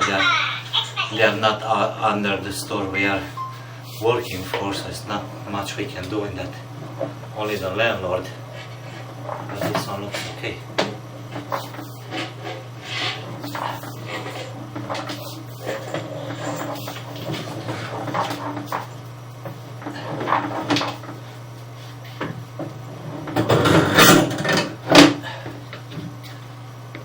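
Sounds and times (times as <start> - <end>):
steady low hum: 0.0 - 27.0
scraping and knocking: 6.0 - 25.2.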